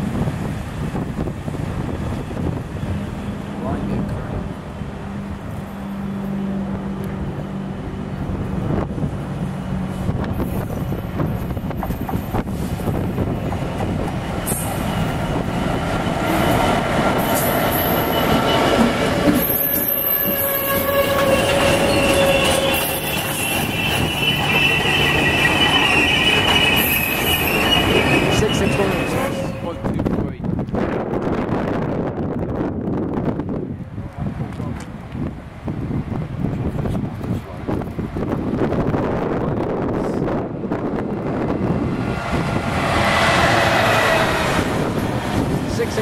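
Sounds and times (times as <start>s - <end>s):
low train drone: 0.0s - 46.0s
train wheels squealing: 17.2s - 29.8s.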